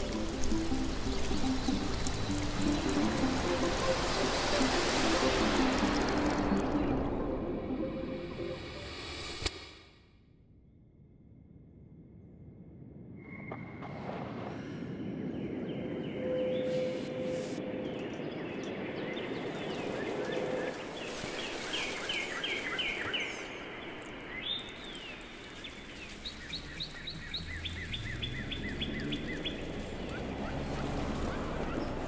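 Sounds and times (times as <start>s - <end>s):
birds chirping: 15.0s - 32.0s.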